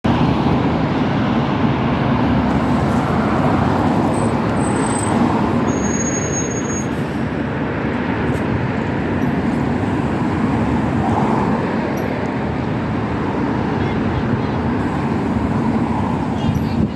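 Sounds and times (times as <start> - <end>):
bus engine and road rumble: 0.0 - 16.9
faint high whistles: 5.7 - 6.9.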